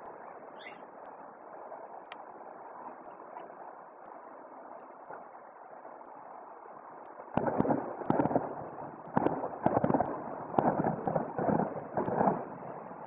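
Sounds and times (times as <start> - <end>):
fireworks bangs with crackle: 7.3 - 12.9.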